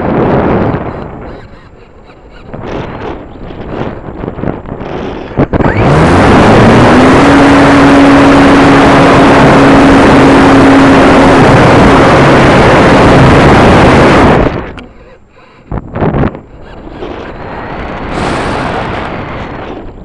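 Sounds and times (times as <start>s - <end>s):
model airplane engine revving: 4.8s - 19.7s.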